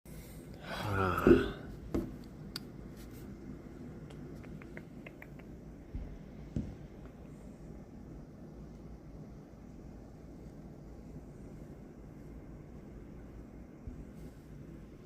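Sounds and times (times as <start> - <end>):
short human vocal sound: 0.6 - 1.7.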